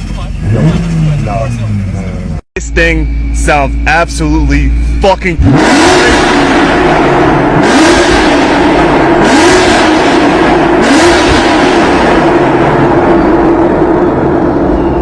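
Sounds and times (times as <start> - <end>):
sports car engine accelerating: 0.0 - 15.0.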